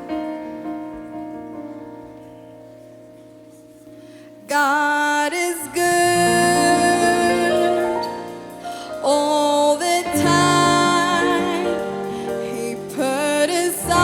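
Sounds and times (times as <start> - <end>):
keyboard accompaniment: 0.0 - 14.0
woman singing worship song: 4.4 - 14.0.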